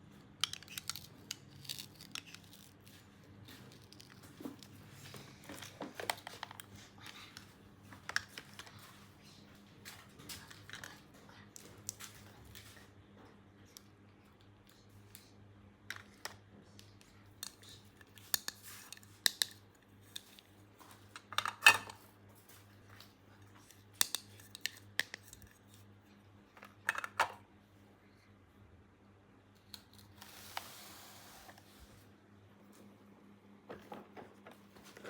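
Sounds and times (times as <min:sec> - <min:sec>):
plastic toy pieces clicking: 0:00.4 - 0:02.7.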